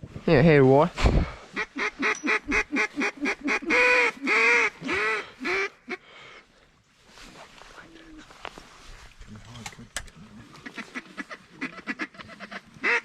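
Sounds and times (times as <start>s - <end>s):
duck quacking: 1.6s - 6.0s, 10.6s - 13.0s.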